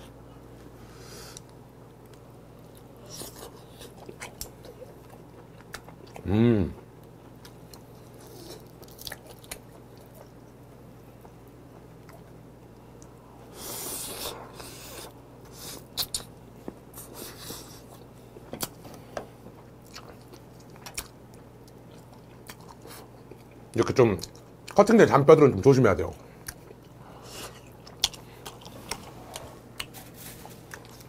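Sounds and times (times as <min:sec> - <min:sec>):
biting and chewing meat: 0:07.0 - 0:12.8.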